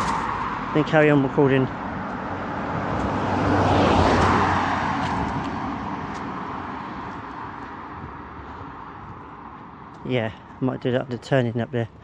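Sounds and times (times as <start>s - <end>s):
car passing by: 0.0s - 9.7s.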